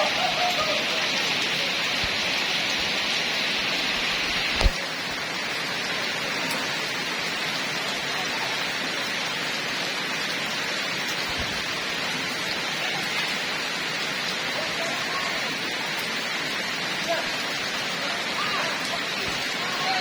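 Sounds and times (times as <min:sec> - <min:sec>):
heavy rain falling: 0:00.0 - 0:20.0.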